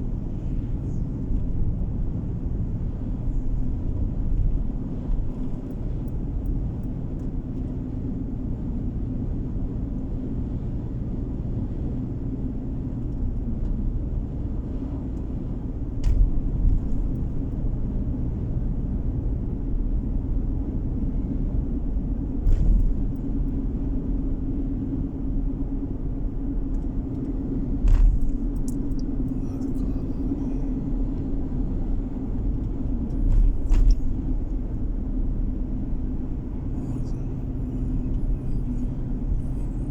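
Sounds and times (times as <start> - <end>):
car engine and tyre drone: 0.0 - 39.9
faint hum: 22.1 - 39.9.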